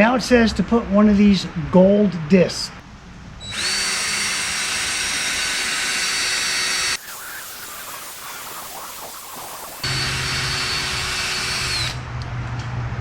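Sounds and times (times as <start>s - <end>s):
power drill sanding plastic: 3.5s - 12.0s.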